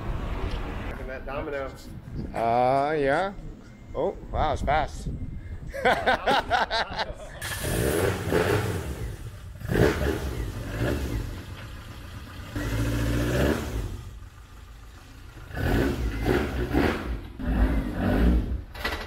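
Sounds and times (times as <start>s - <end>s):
car engine revving: 7.4s - 18.7s.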